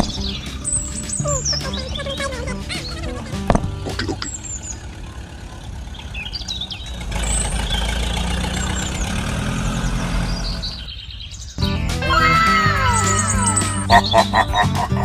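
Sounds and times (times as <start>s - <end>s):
engine running: 0.0s - 11.0s
birds chirping: 0.0s - 15.0s.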